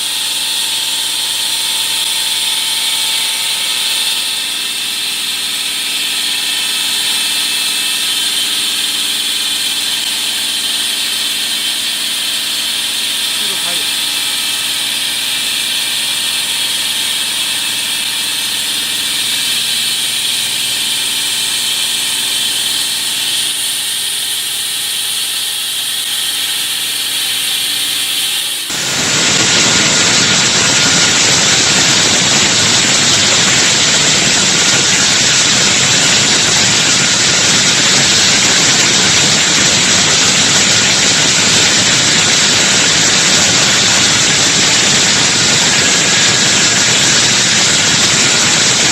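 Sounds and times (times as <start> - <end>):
concrete saw whining: 0.0 - 48.9
loud rushing noise: 28.7 - 35.6.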